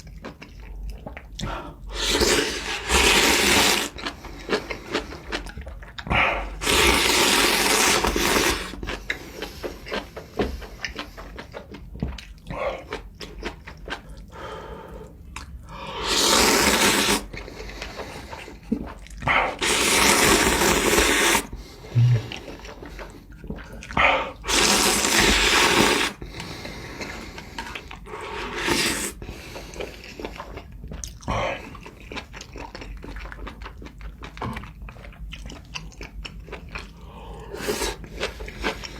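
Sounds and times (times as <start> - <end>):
close-up chewing: 0.0 - 38.9
slurping noodles: 1.9 - 5.4, 6.1 - 10.1, 15.7 - 30.6, 36.9 - 38.9.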